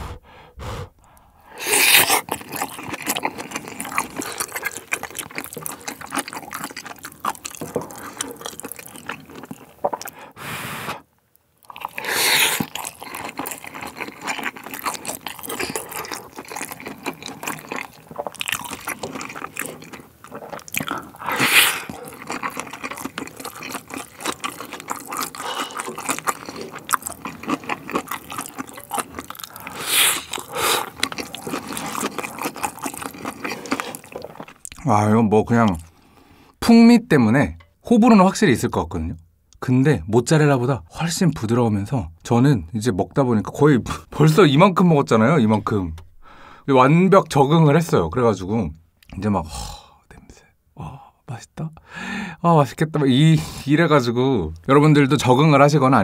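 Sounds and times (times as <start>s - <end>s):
wet chewing and mouth sounds: 0.0s - 10.3s, 11.6s - 34.8s.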